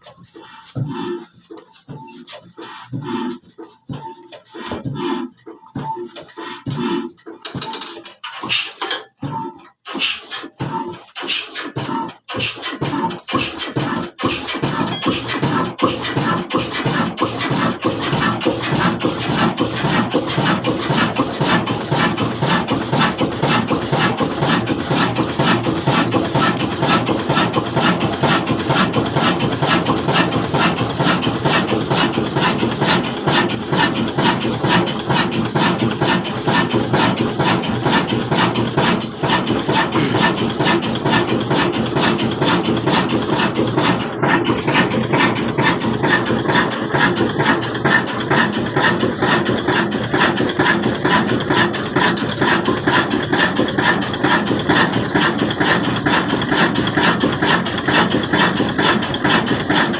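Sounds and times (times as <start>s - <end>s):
diesel engine running: 9.4s - 59.9s.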